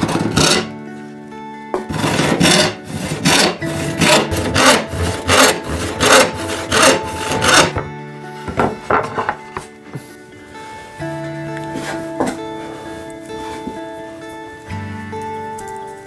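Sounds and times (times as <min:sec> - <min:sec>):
hand tool rasping on workpiece: 0:00.0 - 0:00.7, 0:01.8 - 0:07.8.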